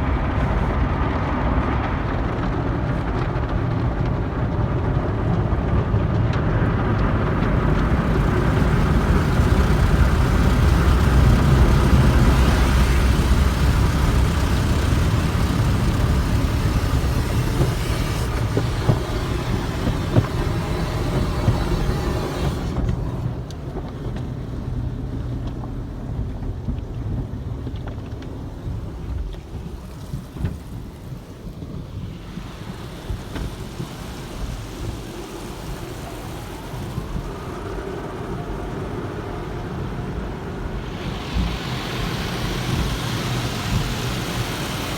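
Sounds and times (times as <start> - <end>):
car wash machinery rumble: 0.0 - 44.9
water spray hiss: 7.6 - 23.4, 29.6 - 44.9.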